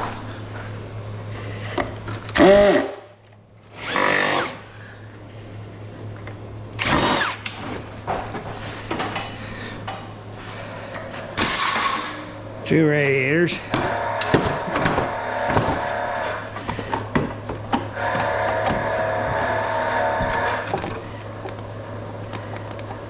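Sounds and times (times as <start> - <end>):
steady low hum: 0.0 - 23.0
power drill motor winding: 3.7 - 4.6, 6.8 - 7.7.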